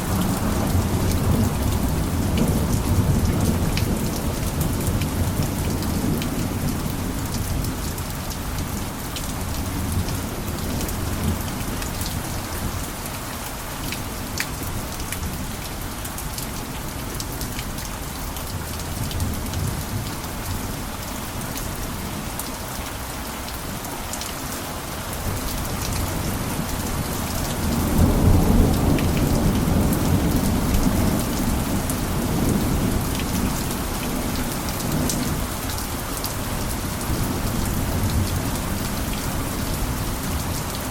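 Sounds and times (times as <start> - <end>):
rain on a roof: 0.0 - 40.9
thunder rumbling: 25.9 - 34.3.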